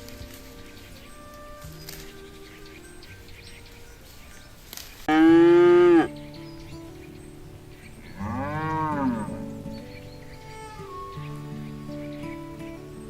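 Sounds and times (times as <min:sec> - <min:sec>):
cows mooing: 0:05.1 - 0:06.1, 0:08.2 - 0:09.5.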